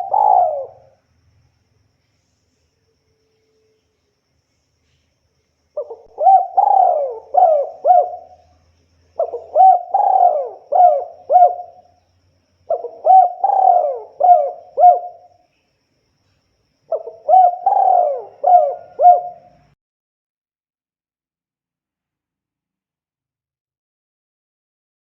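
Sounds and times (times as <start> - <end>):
dove cooing: 0.0 - 1.0, 5.8 - 8.6, 9.2 - 11.9, 12.7 - 15.3, 16.9 - 19.8.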